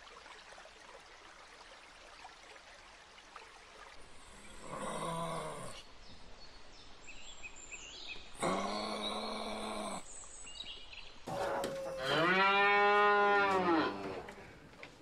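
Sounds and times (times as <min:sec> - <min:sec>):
cow mooing: 0:11.3 - 0:14.4.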